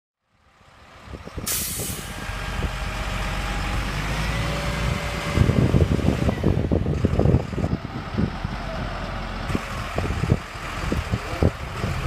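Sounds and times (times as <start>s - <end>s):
truck engine running: 0.6s - 12.0s
air hiss: 1.5s - 2.1s.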